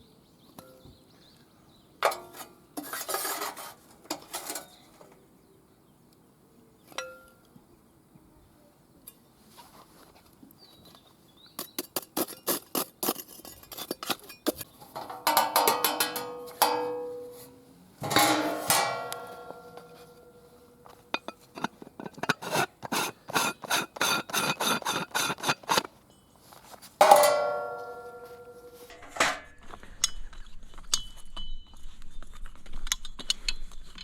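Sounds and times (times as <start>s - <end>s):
metal parts clinking and clanging: 13.5s - 20.4s.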